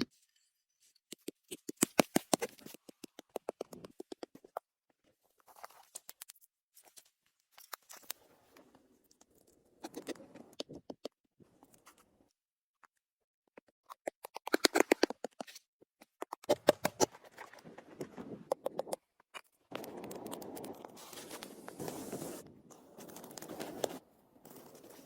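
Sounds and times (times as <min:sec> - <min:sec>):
shovel scraping snow: 0:21.0 - 0:22.4.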